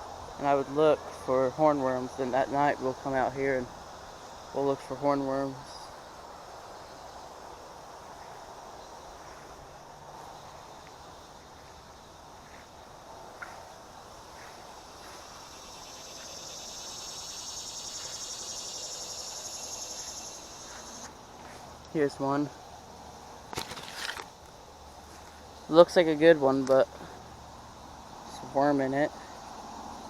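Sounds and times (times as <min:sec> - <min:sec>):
low background hiss: 0:00.0 - 0:30.0
insect buzzing: 0:05.8 - 0:21.5, 0:22.6 - 0:25.6.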